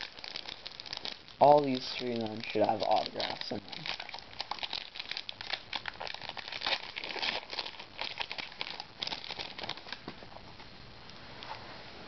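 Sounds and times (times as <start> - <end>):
card pack wrapper crinkling: 0.0 - 10.2.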